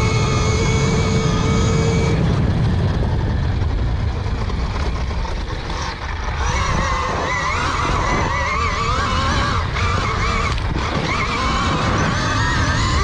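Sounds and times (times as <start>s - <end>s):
steady low rumble: 0.0s - 7.1s
electric dirt bike motor whining: 0.0s - 13.0s.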